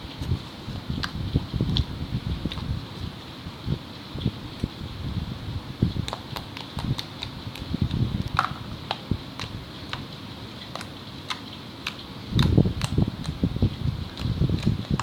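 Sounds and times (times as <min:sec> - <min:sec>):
slime squelching: 0:00.2 - 0:02.8, 0:05.9 - 0:15.0.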